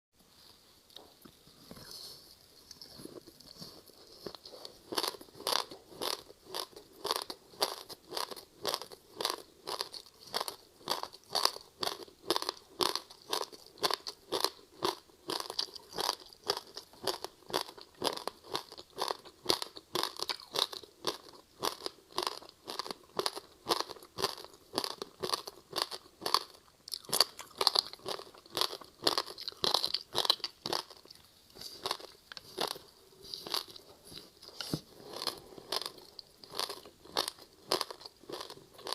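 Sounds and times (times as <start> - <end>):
person chewing crunchy ice: 2.7 - 38.9.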